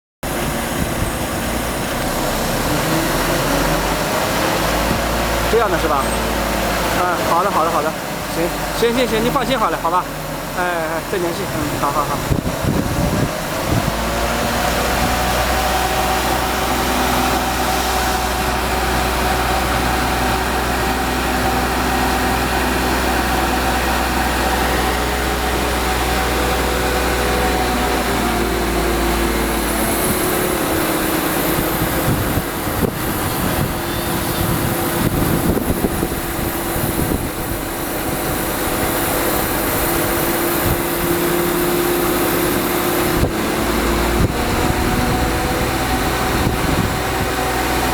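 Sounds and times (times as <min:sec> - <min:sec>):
crane diesel engine running: 0:00.2 - 0:47.9
faint high whine: 0:32.8 - 0:43.2.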